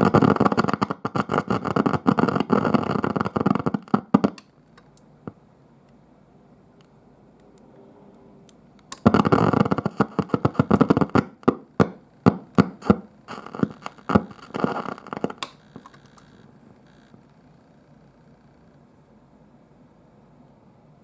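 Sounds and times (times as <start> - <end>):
guitar amp crackling and popping: 0.0 - 5.4, 8.5 - 17.5.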